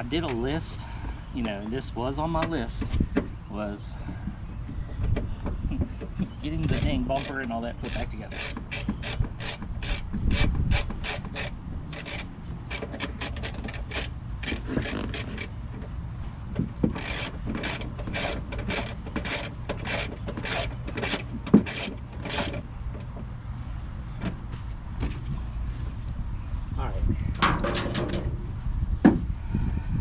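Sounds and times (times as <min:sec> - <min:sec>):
hand ratchet clicking: 0:06.6 - 0:15.5, 0:17.0 - 0:22.6.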